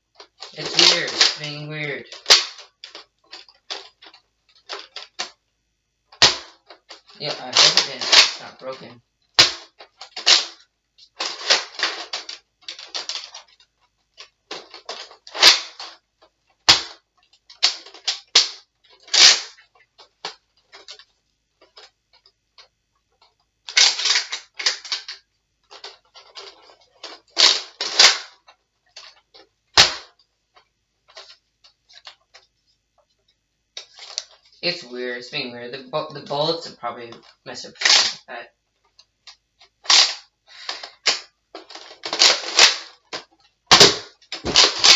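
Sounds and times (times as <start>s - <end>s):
sharp plastic snaps: 0.2s - 5.4s, 6.1s - 8.7s, 9.3s - 32.5s, 37.1s - 44.9s
toy blaster clicking and rattling: 0.2s - 5.4s, 6.1s - 16.0s, 16.6s - 22.3s, 23.7s - 30.2s, 36.7s - 38.3s, 39.2s - 44.9s.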